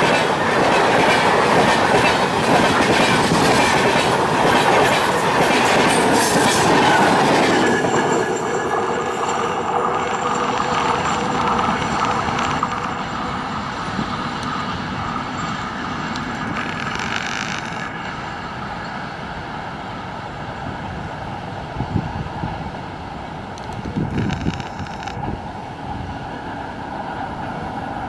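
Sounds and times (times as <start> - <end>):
wind on microphone: 0.0 - 17.0, 20.8 - 23.0, 23.6 - 26.5
passenger train rumbling past: 0.0 - 28.0.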